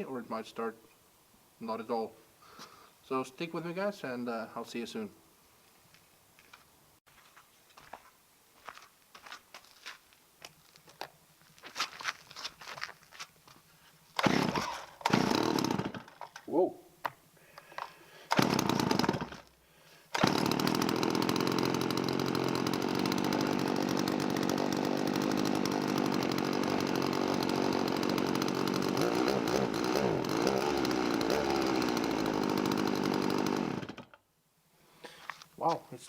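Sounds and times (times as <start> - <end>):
chainsaw engine running: 14.2 - 16.1, 17.8 - 19.5, 20.1 - 34.1.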